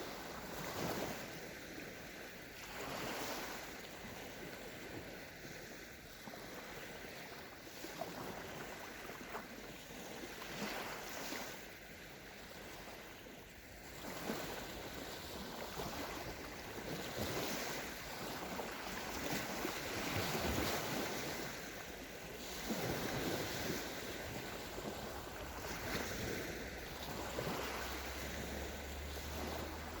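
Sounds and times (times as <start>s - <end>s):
waves washing onto sand: 0.0s - 30.0s
wind on the microphone: 12.5s - 30.0s.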